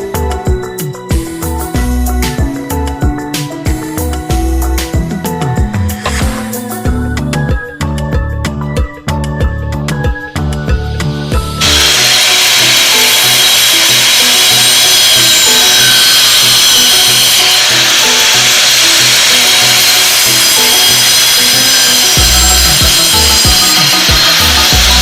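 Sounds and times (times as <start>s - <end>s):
background music: 0.0s - 25.0s
power tool cutting or grinding: 1.2s - 6.9s, 11.1s - 25.0s.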